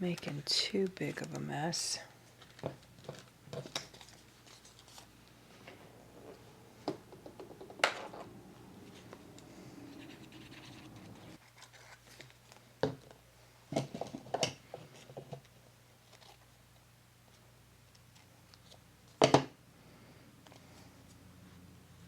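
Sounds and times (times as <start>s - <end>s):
paper scratching and rustling: 9.9s - 12.5s.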